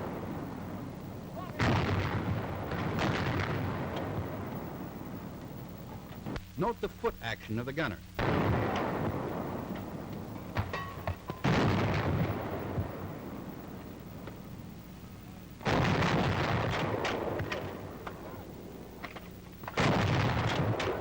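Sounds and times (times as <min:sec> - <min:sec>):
heavy gunshots with echo: 0:01.4 - 0:04.0, 0:15.6 - 0:17.8, 0:19.8 - 0:21.0.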